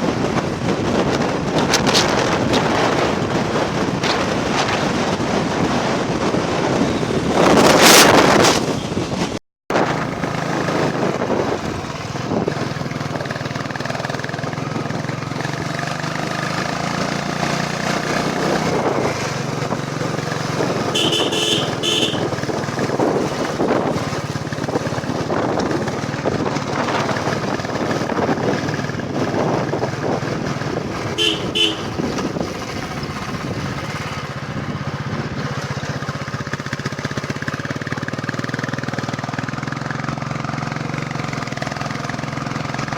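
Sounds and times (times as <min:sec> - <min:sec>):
motorcycle engine running: 0:00.0 - 0:42.9
vehicle horn beeping: 0:20.8 - 0:22.4, 0:31.1 - 0:32.3.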